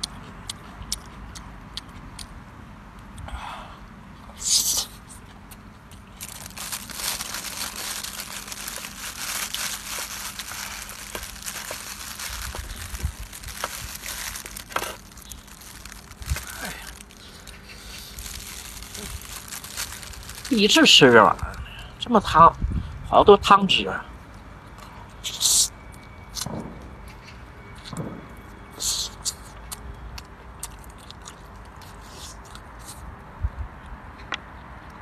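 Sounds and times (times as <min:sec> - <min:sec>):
plastic packaging crinkling: 0:06.2 - 0:21.6.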